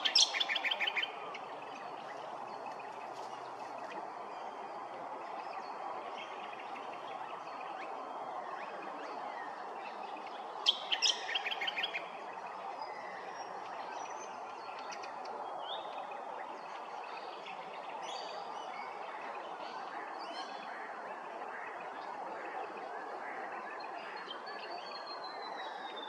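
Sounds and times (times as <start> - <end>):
birds chirping and calling: 0.0 - 4.0, 9.4 - 18.2
steady background noise: 0.0 - 26.0.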